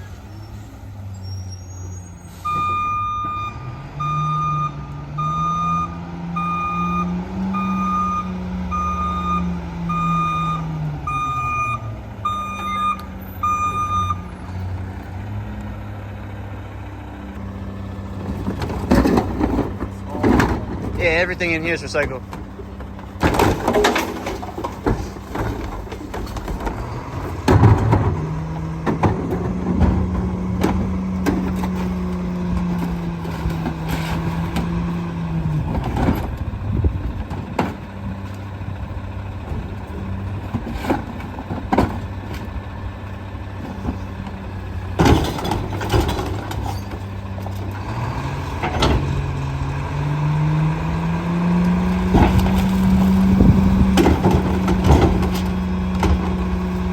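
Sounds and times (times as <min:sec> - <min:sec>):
diesel engine idling and revving: 0:00.0 - 0:56.9
bangs and clanks from carts: 0:17.8 - 0:56.9.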